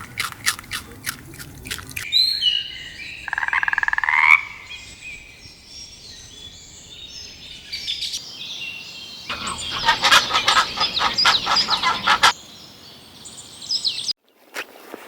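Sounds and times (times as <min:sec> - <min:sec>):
birds chirping: 0:04.7 - 0:13.7
rapid bird calls: 0:09.3 - 0:12.4.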